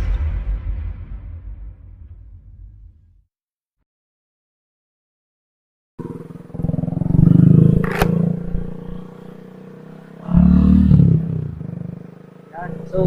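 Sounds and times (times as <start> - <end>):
motorcycle engine running: 6.0 - 13.0
sharp click: 7.8 - 8.4.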